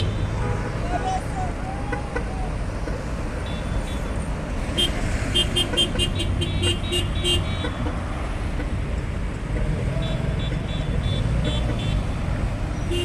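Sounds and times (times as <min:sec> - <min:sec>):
slow-moving car traffic rumble: 0:00.0 - 0:13.0
car horn toots: 0:04.8 - 0:08.0, 0:10.0 - 0:12.2, 0:12.8 - 0:13.0.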